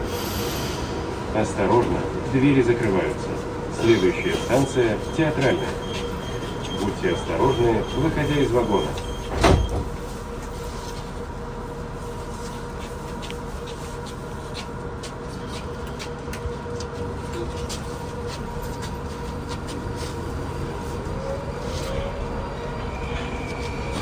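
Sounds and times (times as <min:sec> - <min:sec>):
rising whine: 0:00.0 - 0:02.4
electric tones from metro train: 0:00.0 - 0:10.6, 0:20.6 - 0:24.0.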